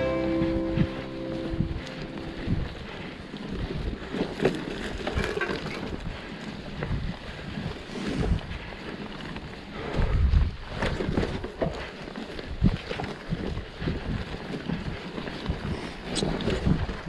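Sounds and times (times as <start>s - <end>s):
bike tyres and frame clattering: 0.0s - 17.0s
wind rumbling on microphone: 0.0s - 17.0s.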